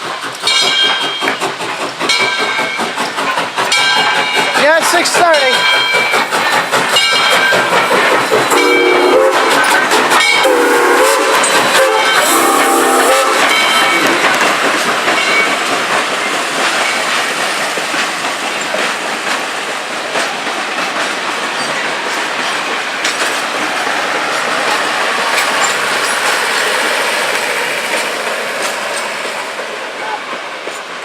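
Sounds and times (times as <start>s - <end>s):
steam train rolling past: 0.0s - 31.0s
wheels clicking over rail joints: 0.0s - 31.0s
steam whistle: 8.5s - 9.7s, 10.4s - 14.1s.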